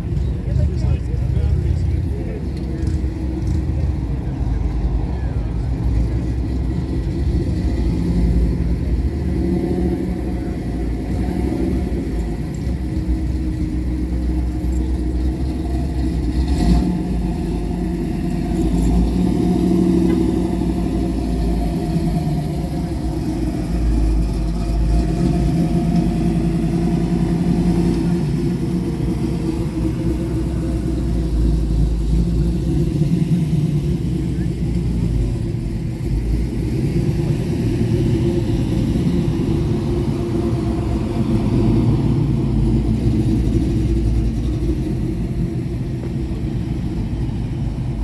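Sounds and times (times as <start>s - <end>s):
car engine rumble: 0.0s - 48.0s.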